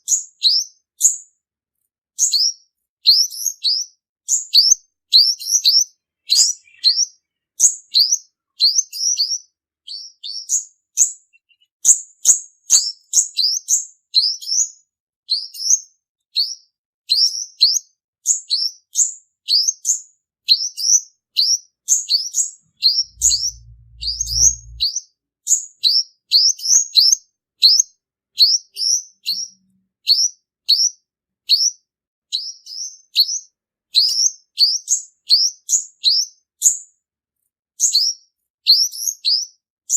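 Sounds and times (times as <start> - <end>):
low hum: 22.8 - 24.9
sunbird singing high notes: 22.8 - 24.9.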